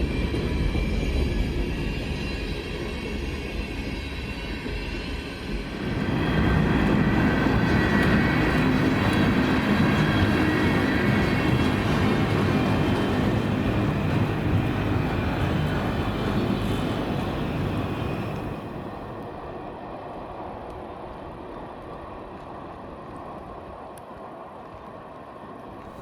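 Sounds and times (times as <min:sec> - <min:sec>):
freight train rolling past: 0:00.0 - 0:20.5.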